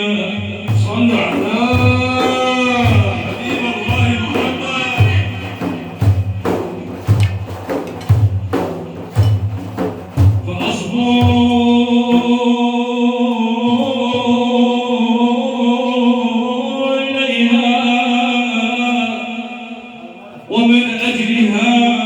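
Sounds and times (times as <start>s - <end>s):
deep hand-drum strikes: 0.4s - 12.7s, 13.5s - 15.0s.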